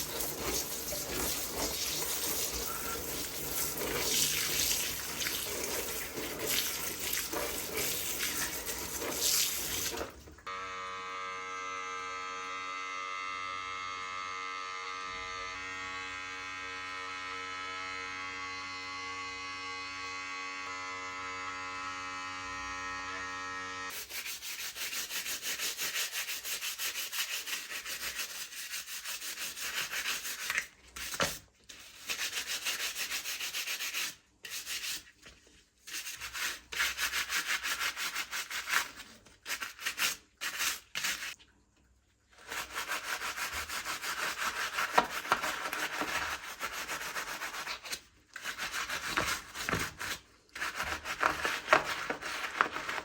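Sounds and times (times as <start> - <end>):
scrubbing on plastic: 0.0 - 10.4, 23.9 - 41.5, 42.2 - 53.0.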